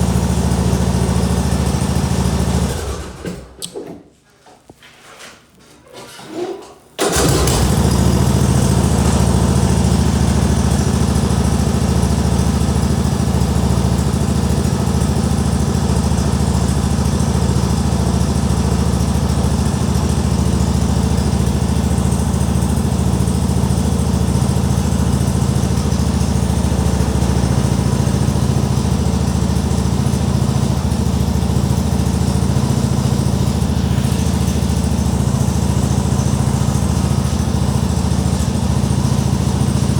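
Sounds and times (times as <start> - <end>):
tractor engine idling: 0.0 - 3.5, 7.0 - 39.9.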